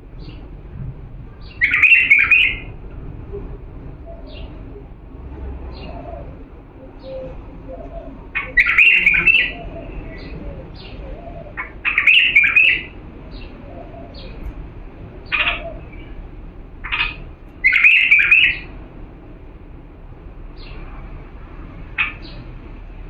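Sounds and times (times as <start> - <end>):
bulbul singing: 1.4 - 2.8, 5.7 - 14.6, 16.8 - 18.7.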